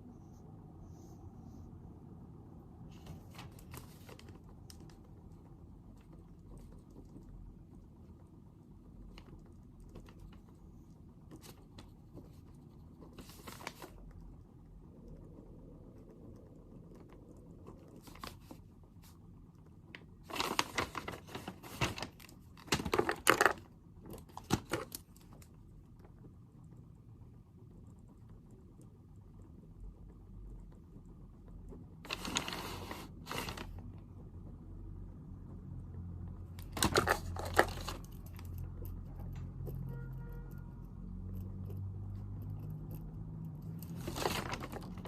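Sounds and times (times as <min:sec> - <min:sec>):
low room hum: 0:00.0 - 0:45.0
paper clicks and rustles: 0:02.9 - 0:05.0, 0:13.0 - 0:14.0, 0:20.0 - 0:25.5, 0:32.0 - 0:33.8, 0:36.6 - 0:38.5, 0:43.8 - 0:45.0
paper crinkling and rustling: 0:02.9 - 0:05.0, 0:13.0 - 0:14.0, 0:20.2 - 0:23.6, 0:32.0 - 0:33.8, 0:36.6 - 0:38.2, 0:43.8 - 0:45.0.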